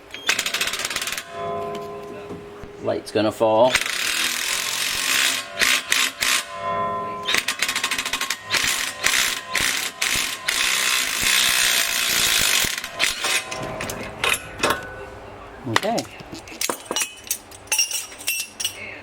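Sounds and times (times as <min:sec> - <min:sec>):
sharp metallic knocks: 0:00.0 - 0:17.3
metal tools ratcheting and clattering: 0:00.0 - 0:19.0.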